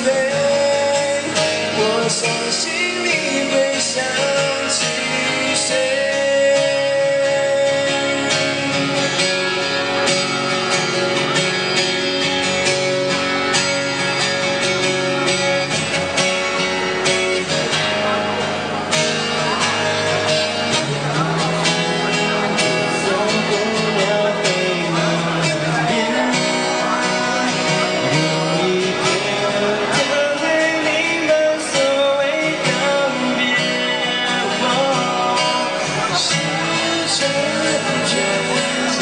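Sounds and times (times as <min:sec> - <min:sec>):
guitar melody with bending notes: 0:00.0 - 0:39.0
live band playing: 0:00.0 - 0:39.0.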